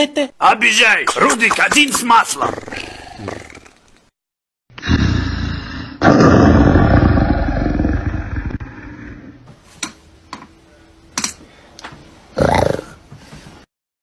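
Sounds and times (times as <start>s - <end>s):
animal growl: 2.4s - 3.8s, 4.8s - 9.4s, 12.4s - 13.0s.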